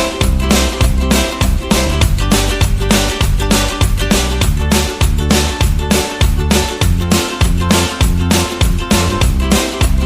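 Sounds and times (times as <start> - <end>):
upbeat guitar music: 0.0 - 10.0.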